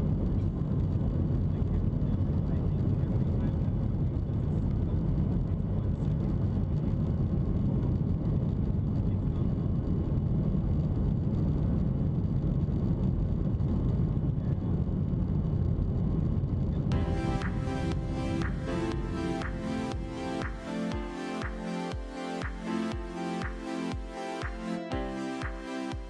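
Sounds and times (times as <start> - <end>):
jet cabin rumble: 0.0 - 20.2.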